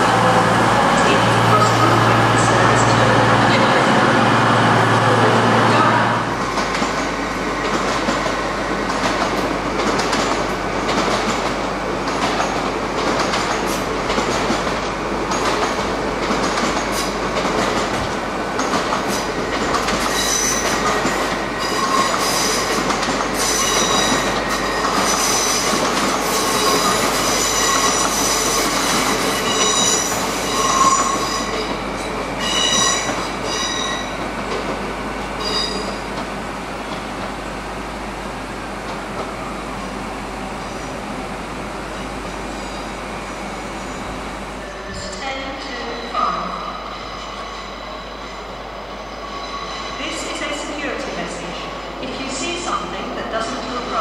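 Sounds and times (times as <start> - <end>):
train wheels clicking over rail joints: 6.5 - 31.8.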